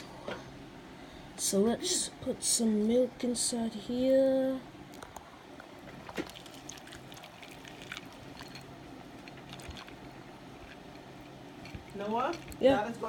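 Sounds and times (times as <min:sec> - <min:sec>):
milk pouring into bowl: 0:06.1 - 0:11.0.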